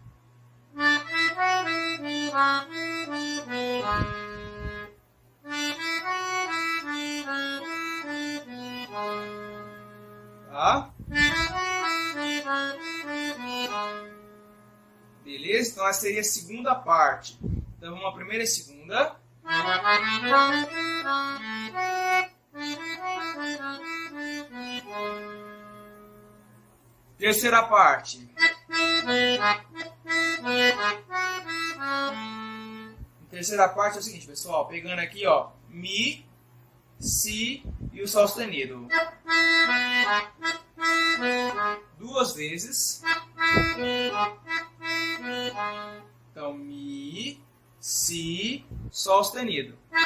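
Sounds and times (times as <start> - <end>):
accordion melody: 0.7 - 16.4, 19.4 - 27.5, 28.4 - 34.0, 38.8 - 47.0.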